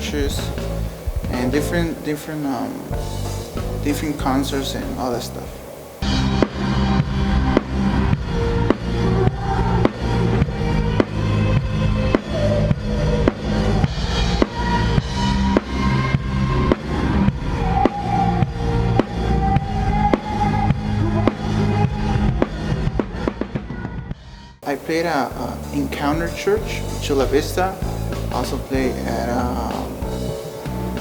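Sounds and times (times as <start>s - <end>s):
bass drum and snare beat: 0.0s - 1.9s, 3.0s - 5.0s, 25.4s - 31.0s
high held melody line: 0.0s - 7.5s, 24.6s - 31.0s
sustained bass notes: 0.0s - 23.1s, 24.6s - 31.0s
band music: 0.0s - 23.8s, 24.6s - 31.0s.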